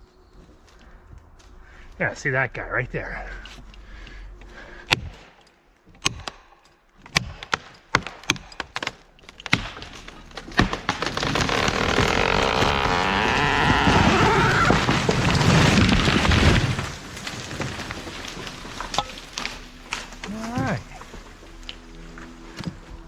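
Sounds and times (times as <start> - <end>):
wood cracking and knocking: 7.0 - 23.0.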